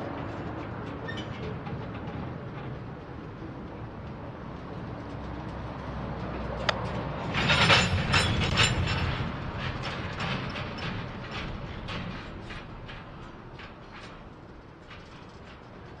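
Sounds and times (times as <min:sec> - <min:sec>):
train rumbling past: 0:00.0 - 0:16.0
wheels clacking over rail joints: 0:00.0 - 0:16.0
metallic clatter: 0:06.2 - 0:16.0.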